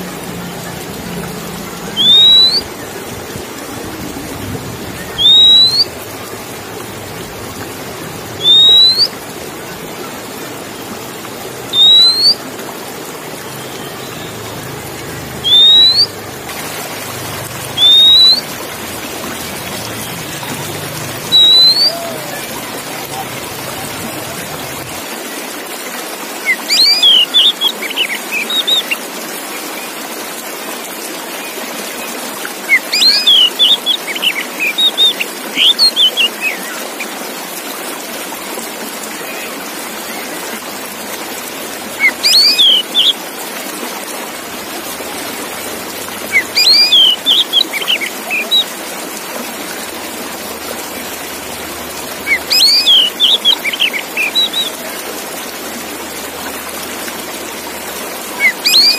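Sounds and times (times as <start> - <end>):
bird singing whistled notes: 1.9 - 2.8, 5.0 - 6.0, 8.4 - 9.2, 11.7 - 12.4, 15.3 - 16.2, 17.8 - 18.5, 21.2 - 22.4, 26.4 - 29.0, 32.7 - 36.8, 42.0 - 43.2, 46.3 - 48.7, 52.2 - 54.8, 58.4 - 58.9.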